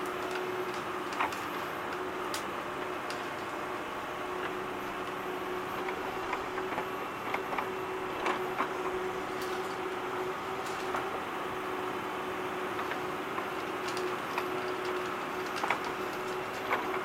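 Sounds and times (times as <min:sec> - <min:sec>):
light clicks and clacks: 0:00.0 - 0:03.6, 0:12.8 - 0:17.0
small electric motors whining: 0:00.0 - 0:17.0.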